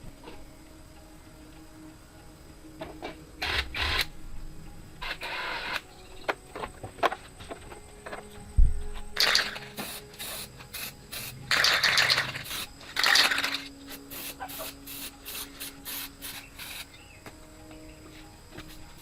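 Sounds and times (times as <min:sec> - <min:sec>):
hissing spray bursts: 0:09.2 - 0:17.0.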